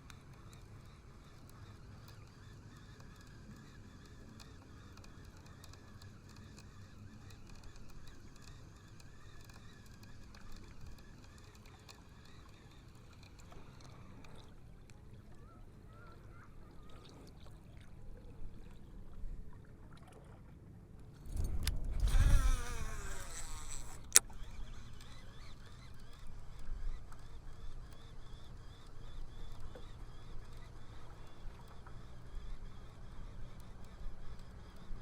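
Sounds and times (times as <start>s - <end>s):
reel engaging click: 0.0s - 15.1s, 21.1s - 35.0s
reel spool whirring: 0.0s - 19.6s, 21.0s - 35.0s
fishing rod whoosh: 21.2s - 24.4s.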